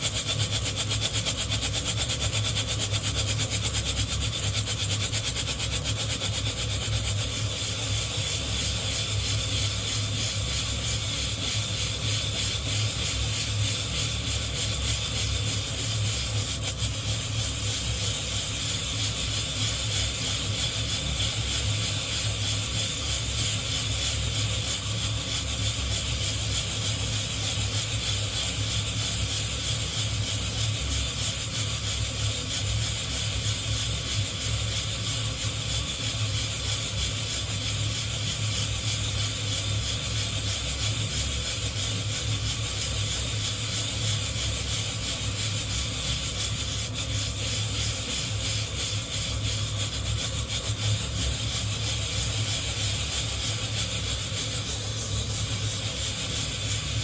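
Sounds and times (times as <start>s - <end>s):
coffee beans rattling in wire mesh: 39.7s - 57.0s
steady flame hiss: 44.1s - 57.0s.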